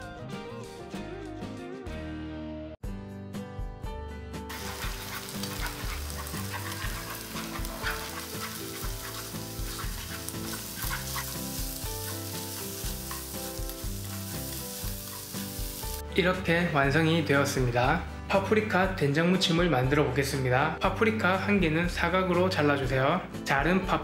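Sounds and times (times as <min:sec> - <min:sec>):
chopsticks stirring in a pan: 0:04.5 - 0:16.0
eggs sizzling in hot oil: 0:04.5 - 0:16.0.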